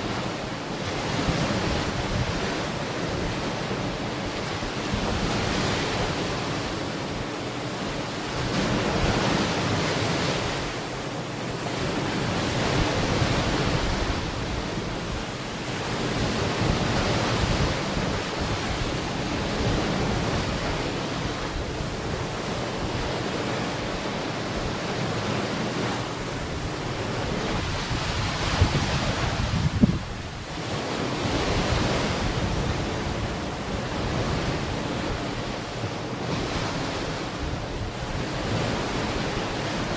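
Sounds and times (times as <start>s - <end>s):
ocean waves washing ashore: 0.0s - 39.9s
wind buffeting microphone: 12.3s - 23.3s, 25.8s - 35.4s.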